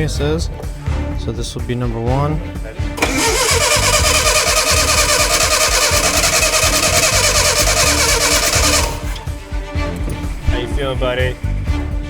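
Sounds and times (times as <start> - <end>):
engine cranking on starter: 3.0 - 9.4
engine running: 3.0 - 9.5.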